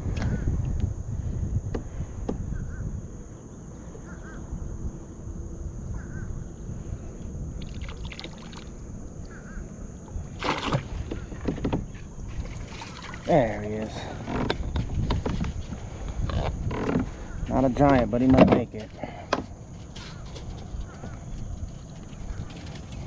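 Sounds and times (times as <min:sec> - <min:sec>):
water sloshing and splashing: 0:07.6 - 0:09.4, 0:10.0 - 0:14.6, 0:18.4 - 0:23.0.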